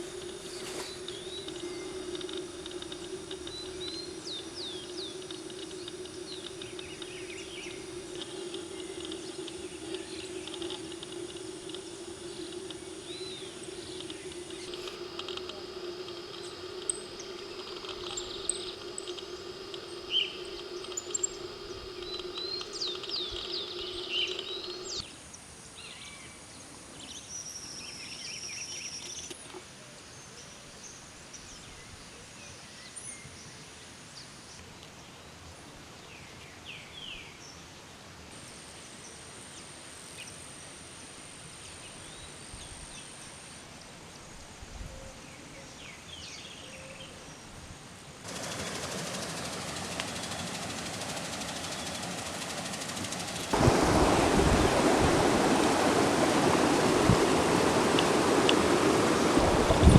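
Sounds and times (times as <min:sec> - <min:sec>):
birds chirping: 0:00.0 - 0:25.0, 0:48.3 - 0:59.9
high-pitched buzz: 0:00.0 - 0:25.0
running water: 0:00.0 - 0:25.0, 0:48.3 - 0:59.9.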